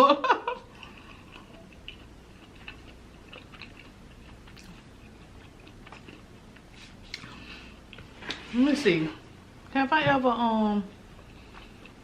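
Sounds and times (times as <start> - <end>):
faint chewing: 0.7 - 8.5, 11.1 - 12.0
mouth clicks and small crunches: 0.9 - 7.3.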